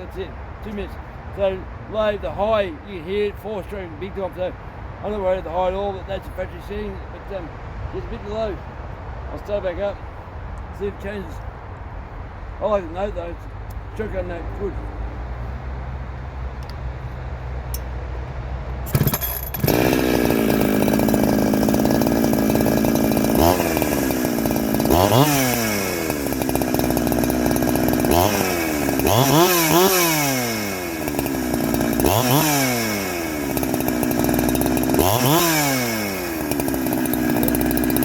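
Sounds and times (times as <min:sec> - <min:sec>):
chainsaw starting and revving: 0:18.7 - 0:38.0.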